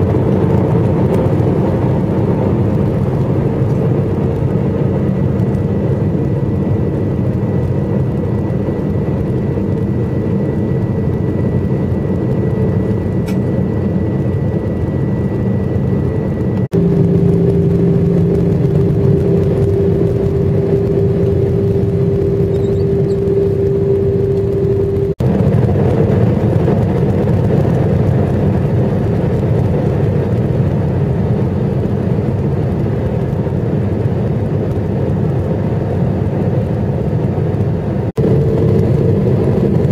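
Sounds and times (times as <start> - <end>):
thin steady whine: 0.0 - 25.6, 37.8 - 39.9
jet airliner cabin roar: 0.0 - 39.9
low hum: 0.0 - 39.9.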